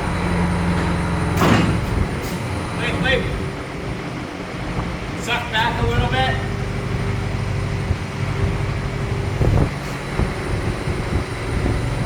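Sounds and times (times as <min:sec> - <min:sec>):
short clunks: 0:00.6 - 0:02.5.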